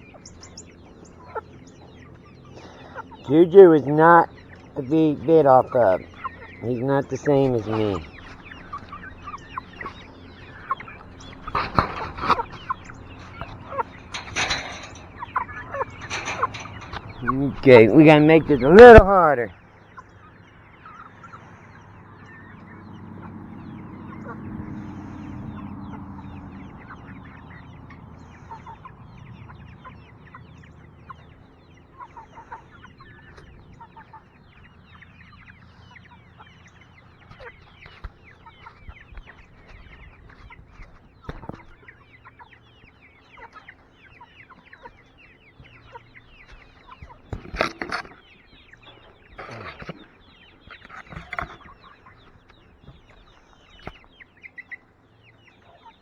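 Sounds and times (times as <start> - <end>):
chickens clucking: 0.0 - 56.0
low hum: 6.0 - 19.1.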